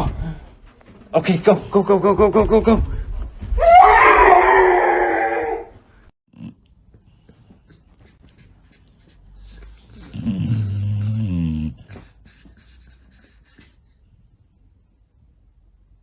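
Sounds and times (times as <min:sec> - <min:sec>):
dog low drawn-out howl: 0:03.6 - 0:05.7.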